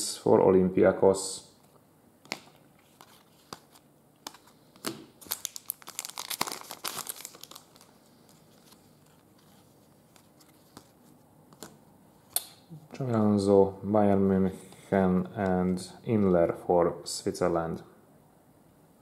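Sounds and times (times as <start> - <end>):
wrapper crackles: 2.3 - 10.8
card pack wrapper crinkling: 2.3 - 12.5.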